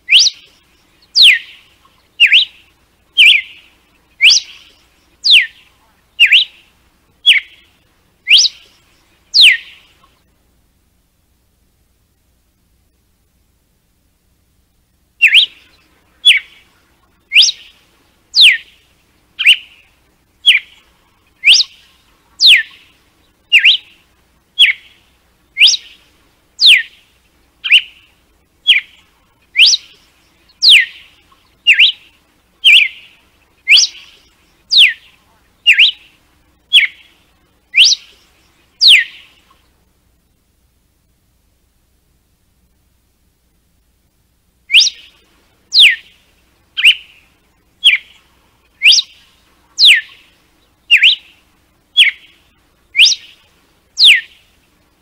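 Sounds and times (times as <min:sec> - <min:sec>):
bird sharp whistled notes: 0:00.1 - 0:01.6, 0:02.2 - 0:02.6, 0:03.2 - 0:05.6, 0:06.2 - 0:06.6, 0:07.2 - 0:07.6, 0:08.3 - 0:08.8, 0:09.4 - 0:09.8, 0:15.2 - 0:16.6, 0:17.3 - 0:17.8, 0:18.4 - 0:18.7, 0:20.4 - 0:20.8, 0:21.4 - 0:22.8, 0:23.5 - 0:23.9, 0:24.6 - 0:24.9, 0:25.6 - 0:26.0, 0:26.6 - 0:27.0, 0:27.6 - 0:28.1, 0:28.7 - 0:29.0, 0:29.6 - 0:31.1, 0:31.7 - 0:33.1, 0:33.7 - 0:35.1, 0:35.7 - 0:36.1, 0:36.7 - 0:37.1, 0:37.8 - 0:38.2, 0:38.8 - 0:39.3, 0:44.7 - 0:46.1, 0:46.8 - 0:47.2, 0:47.8 - 0:48.1, 0:48.8 - 0:49.2, 0:49.8 - 0:50.2, 0:50.9 - 0:51.3, 0:52.0 - 0:52.3, 0:53.0 - 0:53.4, 0:54.0 - 0:54.4.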